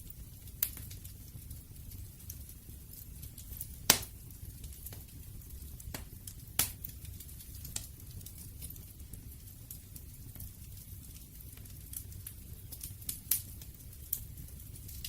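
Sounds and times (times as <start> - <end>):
fire crackling: 0.0 - 15.0
low rumble of flames: 0.0 - 15.0
loud sharp pops: 3.9 - 4.1.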